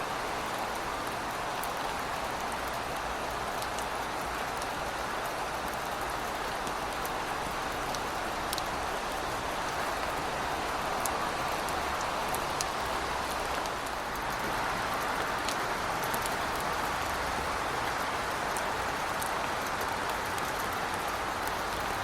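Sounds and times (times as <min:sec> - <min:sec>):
heavy rain hissing: 0:05.3 - 0:17.8.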